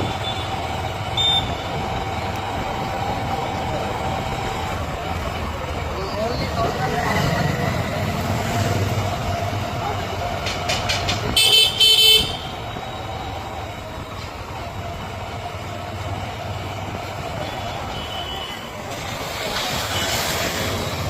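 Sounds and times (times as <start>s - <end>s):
vehicle horn beeping: 0.0s - 1.7s, 11.3s - 12.7s, 17.5s - 18.7s
road traffic noise: 0.0s - 21.0s.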